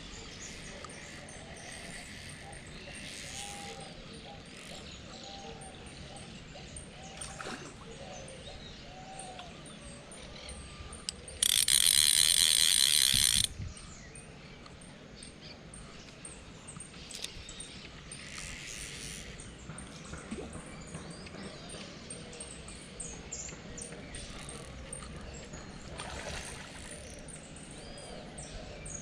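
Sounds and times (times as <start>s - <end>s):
fishing reel ratchet clicking: 0.3s - 5.3s, 10.4s - 13.6s, 18.1s - 19.5s, 24.2s - 25.1s, 26.8s - 27.2s.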